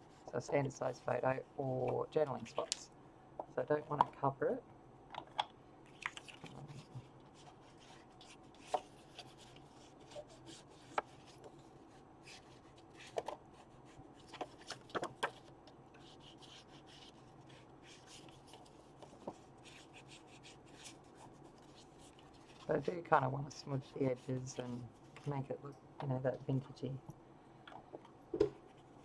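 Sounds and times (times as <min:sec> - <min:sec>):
ink applicator rubbing paper: 0:06.6 - 0:15.4, 0:16.0 - 0:25.5.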